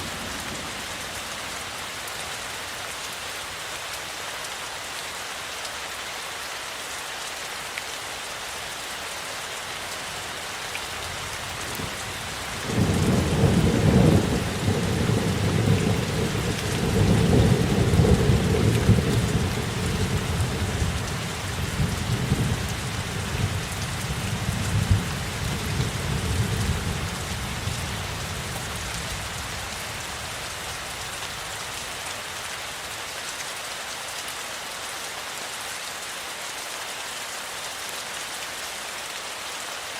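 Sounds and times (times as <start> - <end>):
rain hissing: 0.0 - 4.1, 8.7 - 33.5.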